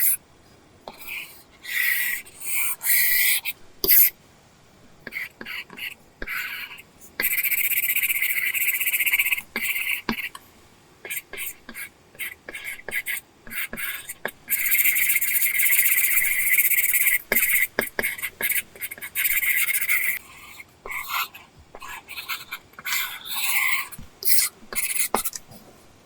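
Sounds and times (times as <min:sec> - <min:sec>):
stylus scratching on screen: 0:11.0 - 0:25.6.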